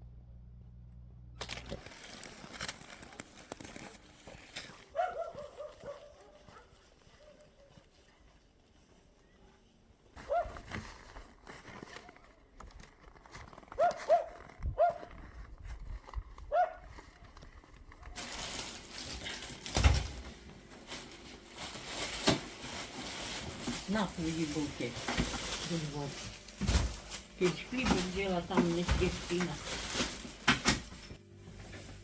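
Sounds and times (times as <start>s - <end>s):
rustling: 1.4s - 32.0s
dog barking: 4.9s - 7.8s, 10.2s - 10.6s, 13.8s - 15.1s, 16.5s - 16.9s.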